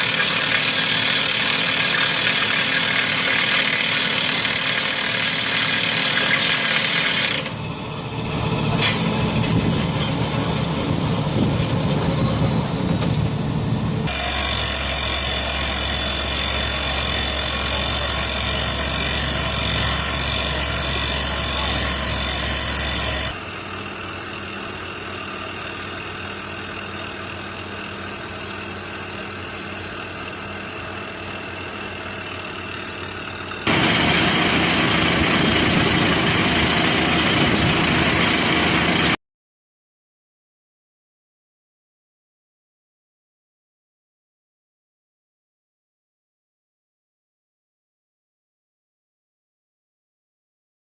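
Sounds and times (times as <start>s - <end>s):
hydraulic rock drill: 0.0s - 23.4s, 27.2s - 39.2s
excavator engine running under load: 7.2s - 39.2s.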